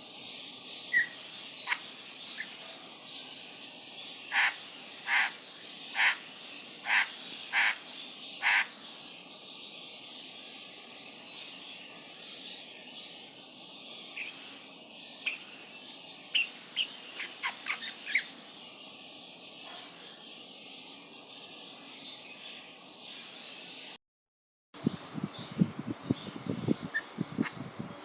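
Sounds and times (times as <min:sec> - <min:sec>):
bird calling: 0:00.9 - 0:02.7, 0:04.2 - 0:08.7, 0:16.3 - 0:18.4.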